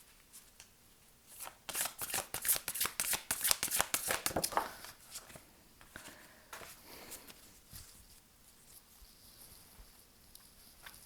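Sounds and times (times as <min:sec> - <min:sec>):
cards being shuffled: 0:01.3 - 0:05.4.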